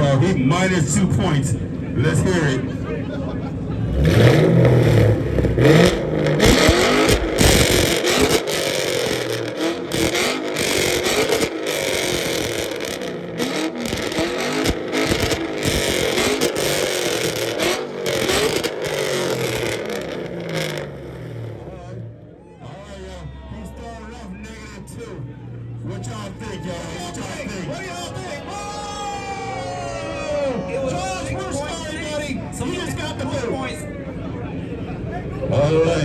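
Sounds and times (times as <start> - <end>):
car engine revving: 1.4 - 22.4.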